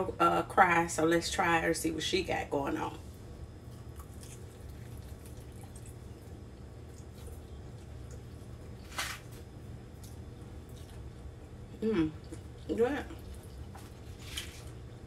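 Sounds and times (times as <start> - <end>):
steady low hum: 0.0 - 15.0
person chewing food: 3.6 - 15.0.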